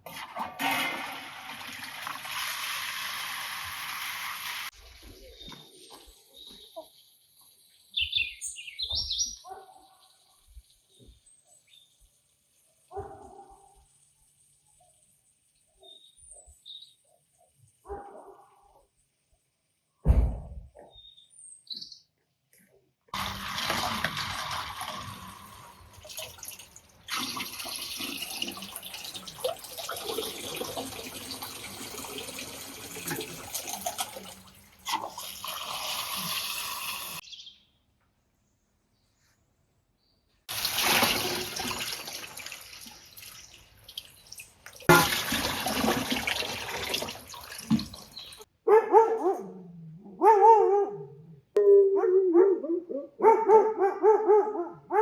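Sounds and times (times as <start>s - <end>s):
water running and splashing: 0.6s - 5.2s, 23.2s - 37.2s, 40.5s - 48.5s
dog barking: 9.4s - 10.0s, 12.9s - 13.8s, 17.8s - 18.8s, 48.6s - 55.0s.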